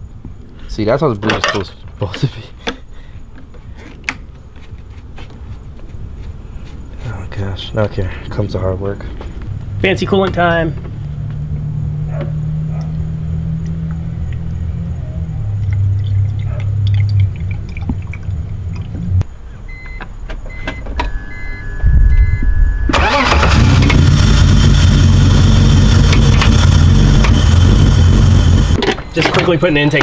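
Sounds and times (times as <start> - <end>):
car engine running: 7.4 - 14.9, 22.9 - 28.8
short electronic beeps: 19.7 - 23.0
engine cranking and starting: 22.9 - 29.6.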